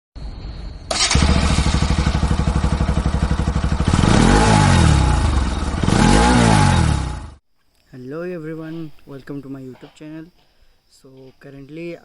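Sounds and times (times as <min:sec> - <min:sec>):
motorcycle engine idling and revving: 0:00.9 - 0:07.4.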